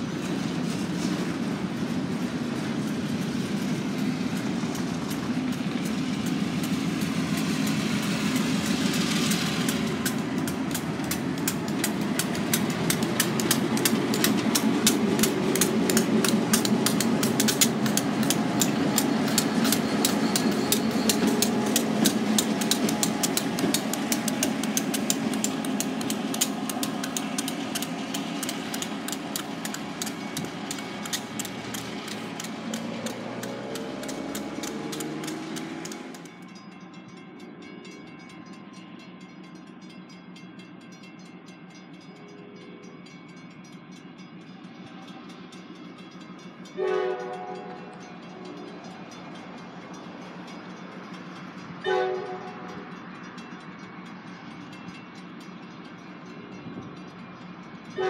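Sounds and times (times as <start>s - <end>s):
freight train rumble: 0.0s - 58.0s
wheels clicking over rail joints: 0.0s - 58.0s
distant train horn blast: 46.7s - 48.6s, 51.8s - 52.9s.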